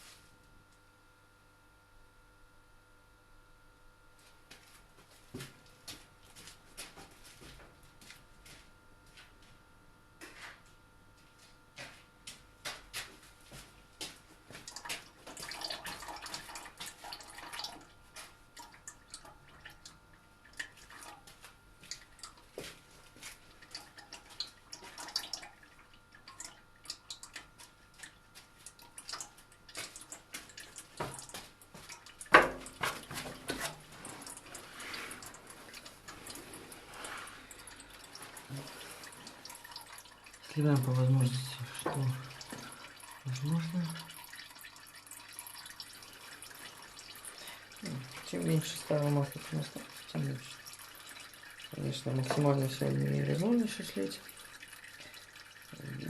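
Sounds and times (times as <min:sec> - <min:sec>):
oil draining and dripping: 0:11.8 - 0:56.0.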